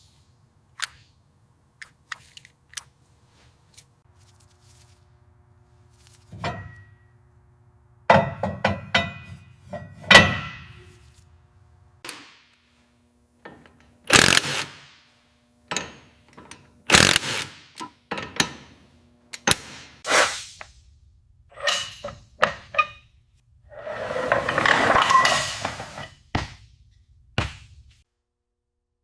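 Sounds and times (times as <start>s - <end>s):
metal knocks and clanks: 8.1s - 10.9s
tool scraping: 23.7s - 26.2s.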